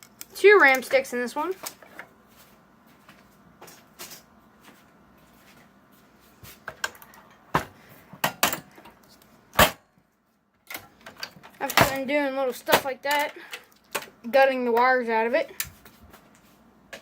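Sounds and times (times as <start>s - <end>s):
computer parts clicking and knocking: 8.2s - 9.0s, 10.7s - 12.1s.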